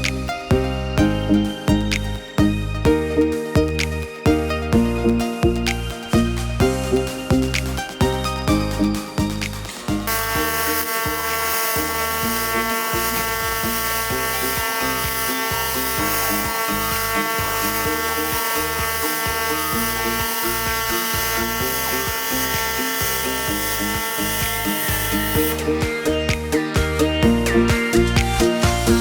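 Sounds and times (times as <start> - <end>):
music with bass line: 0.0 - 29.0
welding arc buzzing: 9.7 - 25.8.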